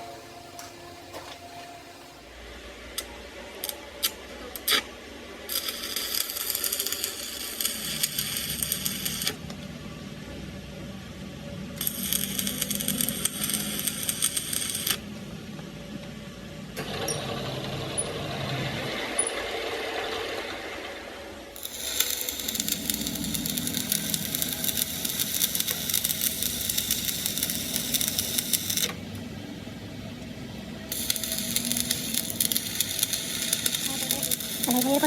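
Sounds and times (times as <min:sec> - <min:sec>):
rattling mechanical noise: 0:16.8 - 0:29.2.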